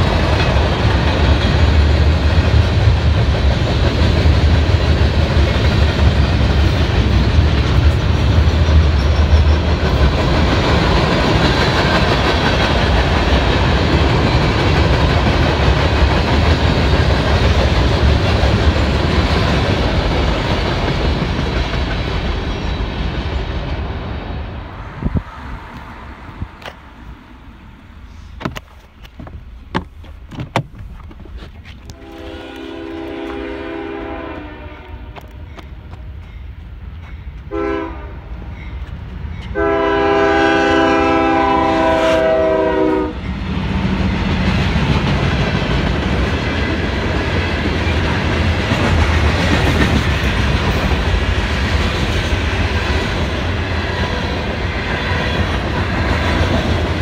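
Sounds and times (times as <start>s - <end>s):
train wheels rumbling on rails: 0.0s - 57.0s
locomotive horn blasts: 31.9s - 35.4s, 37.5s - 38.2s, 39.5s - 43.2s.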